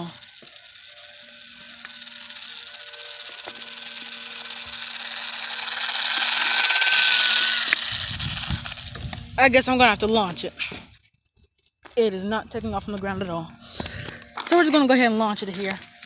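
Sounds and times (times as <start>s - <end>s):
electric motor and propeller whirring: 0.0s - 16.0s.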